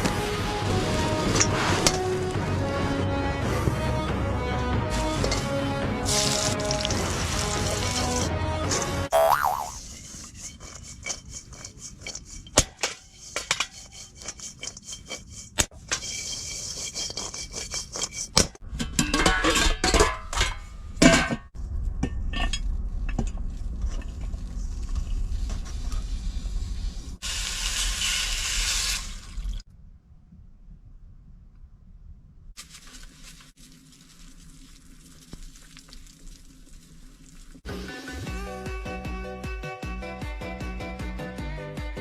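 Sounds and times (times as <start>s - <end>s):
dishes and pans clinking: 18.8s - 21.4s.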